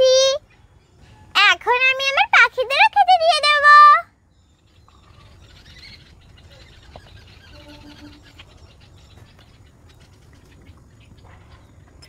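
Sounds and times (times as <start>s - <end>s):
distant birds chirping: 0.0s - 12.0s
short low pulsed tone: 7.5s - 8.2s.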